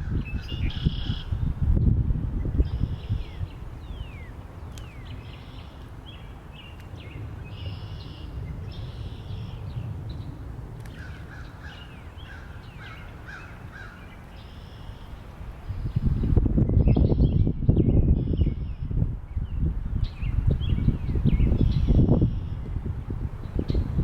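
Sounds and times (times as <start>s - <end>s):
wind rumbling: 0.0s - 24.0s
birds chirping: 2.5s - 18.8s.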